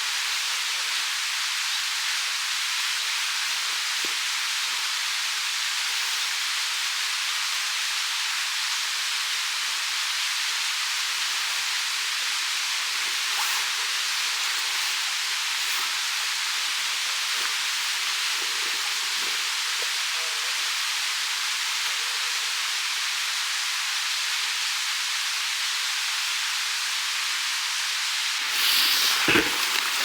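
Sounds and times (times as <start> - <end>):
steady rushing hiss: 0.0 - 30.0.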